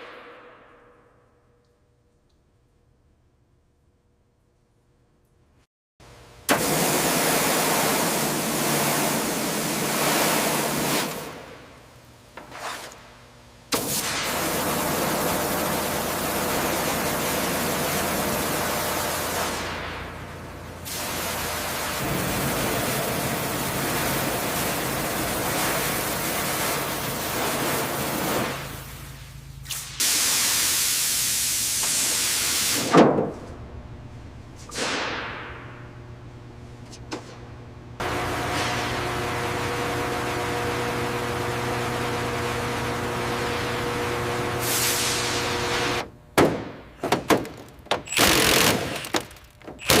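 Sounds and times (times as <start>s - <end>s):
machine hum: 14.4s - 29.8s, 33.2s - 50.0s.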